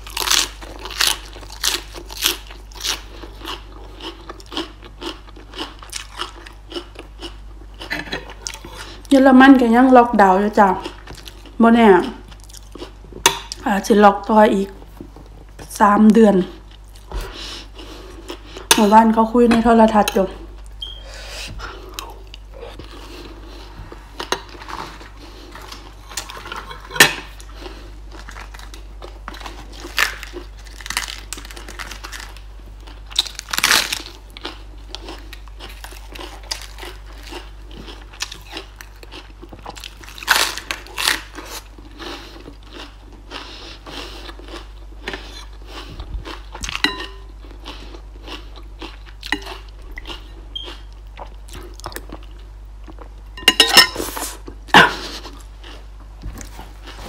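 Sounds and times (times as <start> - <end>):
crunchy chewing and biting: 0.0 - 9.0, 21.7 - 53.2.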